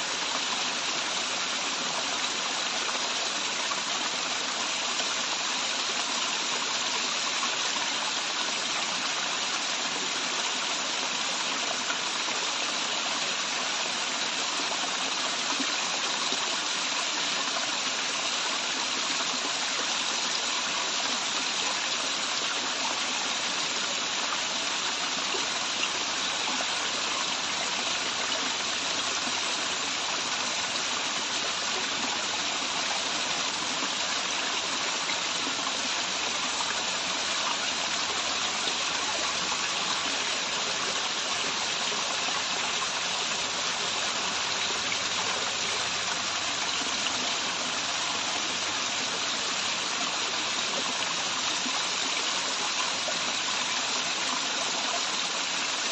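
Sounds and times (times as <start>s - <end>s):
waterfall and stream rushing: 0.0s - 55.9s.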